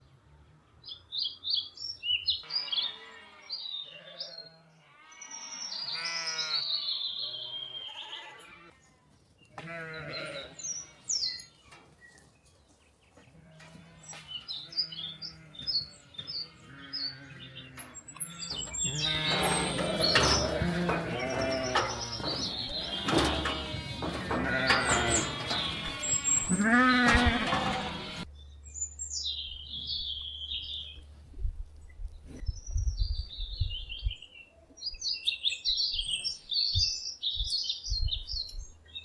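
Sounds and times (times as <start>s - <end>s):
small birds chirping: 0.8s - 39.0s
farm animals bleating: 2.4s - 8.9s, 9.5s - 12.0s, 13.2s - 28.3s.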